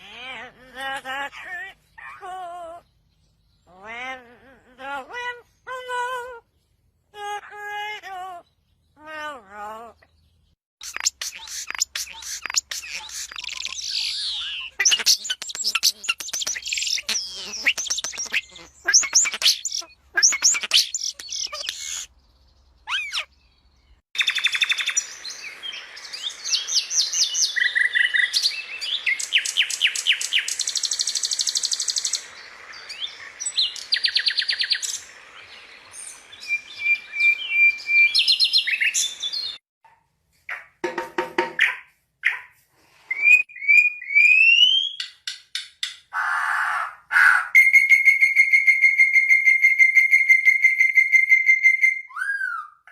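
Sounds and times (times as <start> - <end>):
small songbirds chirping and singing: 0.0 - 39.6.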